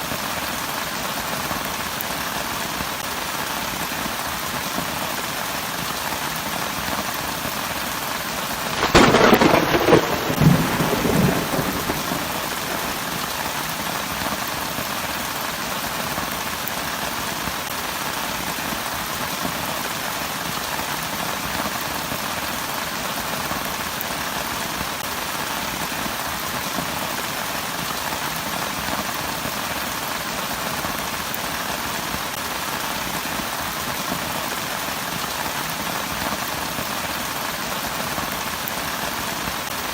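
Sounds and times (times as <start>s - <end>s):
heavy rain falling: 0.0s - 39.9s
thunderclap: 8.7s - 13.5s.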